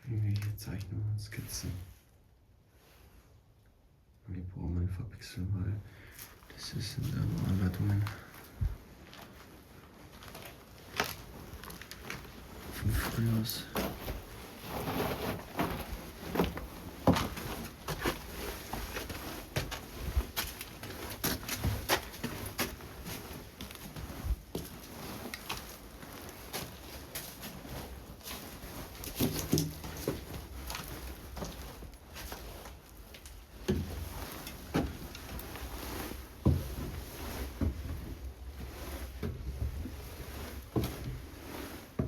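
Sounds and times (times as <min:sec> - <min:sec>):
footsteps and knocks on floor: 0:13.8 - 0:22.8, 0:36.4 - 0:38.3.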